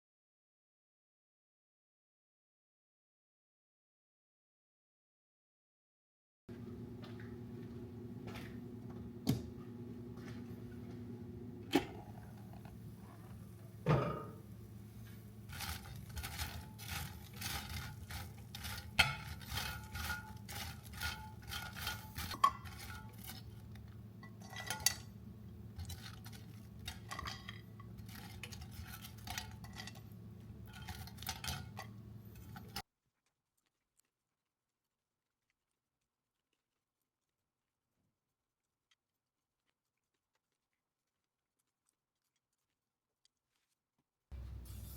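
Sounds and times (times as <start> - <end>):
appliance hum: 6.5 - 32.8, 44.3 - 44.9
dishes and utensils clinking: 11.7 - 14.6, 15.5 - 25.2, 25.8 - 32.8.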